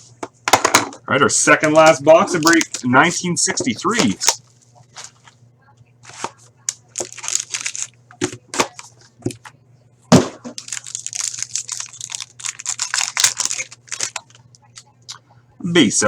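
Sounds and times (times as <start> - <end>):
faint electrical hum: 0.0 - 16.0
plastic wrapping tearing and crinkling: 6.1 - 8.9, 10.5 - 14.4.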